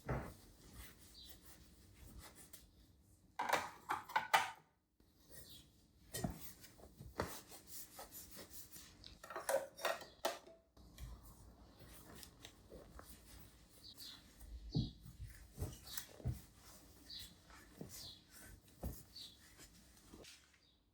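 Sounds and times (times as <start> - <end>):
rubbing strokes: 11.7 - 20.5.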